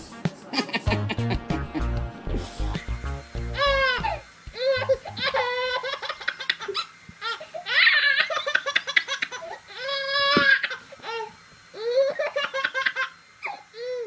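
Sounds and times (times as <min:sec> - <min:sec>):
baby laughing: 0:03.6 - 0:14.0.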